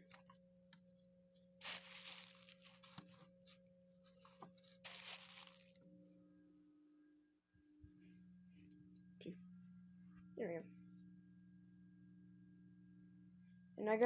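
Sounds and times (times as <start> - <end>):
low hum: 0.0 - 13.8
cloth rustling: 1.6 - 3.5, 4.1 - 5.8.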